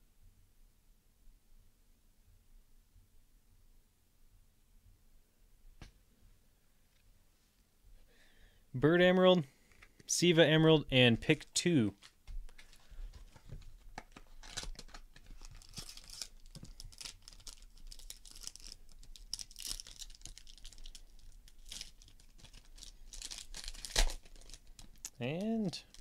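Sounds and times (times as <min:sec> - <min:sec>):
packaging crinkling and tearing: 0:11.9 - 0:26.0.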